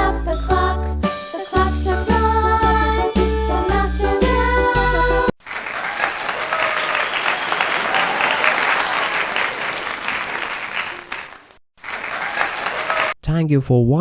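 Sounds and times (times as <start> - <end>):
music: 0.0 - 5.3
crowd applause: 5.4 - 13.2.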